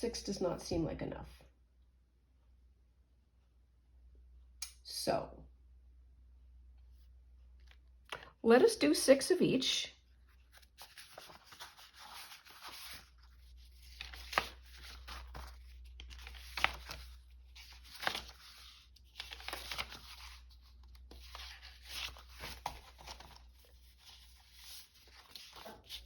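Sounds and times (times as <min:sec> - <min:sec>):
paper rustling and crinkling: 0:10.2 - 0:26.0.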